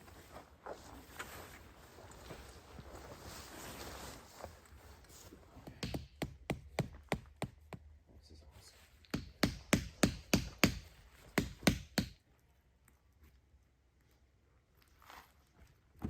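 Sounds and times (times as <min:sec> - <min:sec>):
sharp knocking blows: 0:05.7 - 0:07.6.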